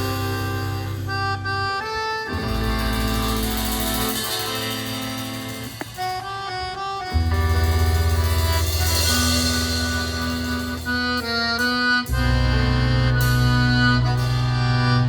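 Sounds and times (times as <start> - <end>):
accordion sustained chords: 0.0 - 15.0
low bass notes: 0.0 - 15.0.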